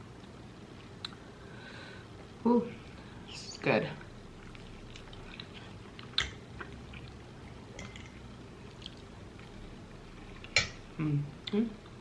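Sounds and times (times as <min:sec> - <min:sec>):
person chewing food: 0:04.2 - 0:12.0.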